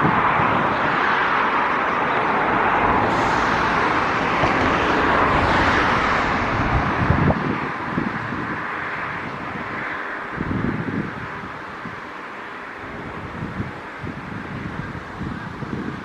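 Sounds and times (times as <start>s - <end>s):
river rushing: 1.5s - 9.1s
wind buffeting microphone: 2.1s - 12.1s, 12.9s - 16.0s.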